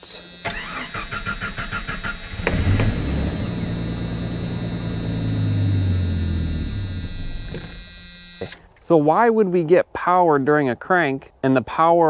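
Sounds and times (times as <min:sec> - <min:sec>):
engine cranking on starter: 0:00.4 - 0:08.0
engine running: 0:00.4 - 0:08.6.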